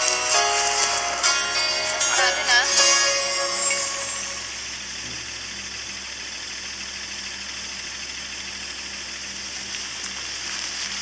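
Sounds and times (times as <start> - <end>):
car engine idling: 0.0 - 11.0
steady hiss: 8.5 - 11.0.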